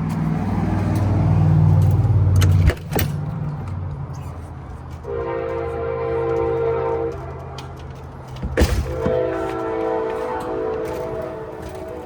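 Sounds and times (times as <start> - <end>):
engine humming low: 0.0 - 12.0
steady horn-like tone: 5.0 - 7.4, 8.9 - 12.0.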